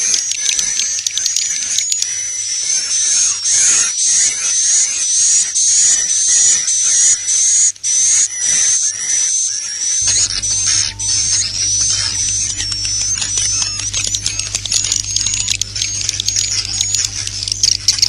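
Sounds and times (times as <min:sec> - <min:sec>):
steady low hum: 0:00.0 - 0:18.0
swiftlet chirping calls: 0:05.3 - 0:18.0.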